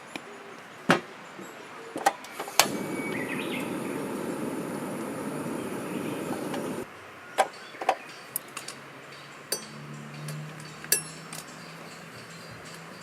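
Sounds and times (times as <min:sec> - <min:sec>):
steady rushing noise: 0:02.6 - 0:06.9.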